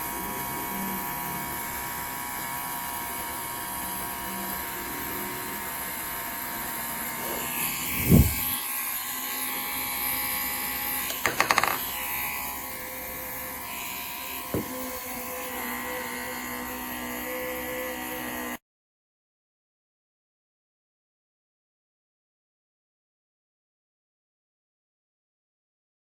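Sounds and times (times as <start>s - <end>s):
air compressor hissing: 7.2s - 8.6s
heavy thump: 14.6s - 14.8s.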